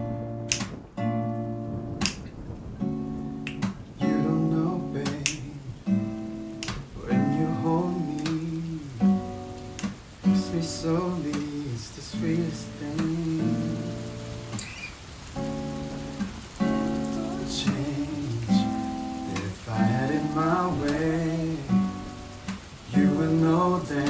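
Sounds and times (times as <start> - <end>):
acoustic guitar chords: 0.0 - 24.0
finger snaps: 0.5 - 0.8, 2.0 - 2.3, 3.4 - 3.8, 5.1 - 5.5, 6.6 - 6.9, 9.7 - 10.0.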